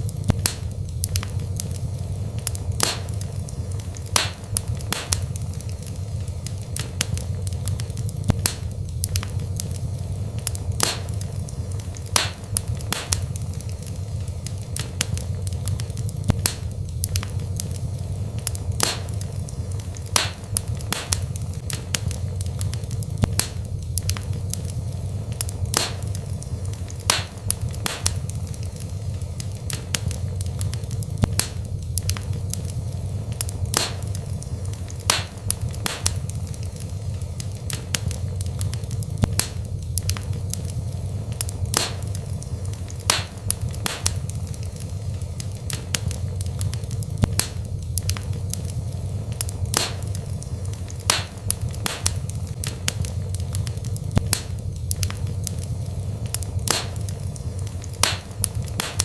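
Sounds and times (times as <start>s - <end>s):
fire crackles and pops: 0.0s - 59.0s
fire rumbling in fireplace: 0.0s - 59.0s.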